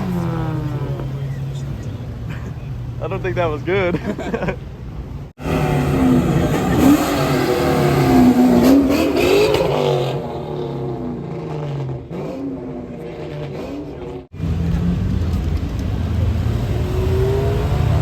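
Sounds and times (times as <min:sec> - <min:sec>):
car engine revving: 0:05.4 - 0:18.0.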